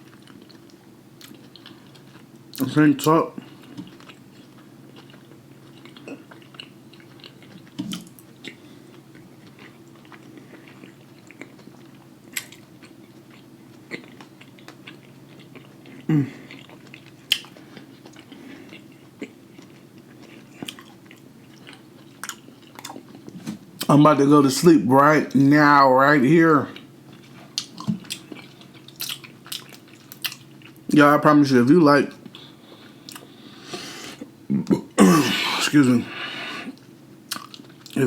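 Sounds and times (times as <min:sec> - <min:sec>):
chewing with wet mouth clicks: 0:00.0 - 0:02.6, 0:03.4 - 0:23.9, 0:26.7 - 0:30.9, 0:32.2 - 0:33.3, 0:36.8 - 0:38.0
steady low hum: 0:00.0 - 0:38.0.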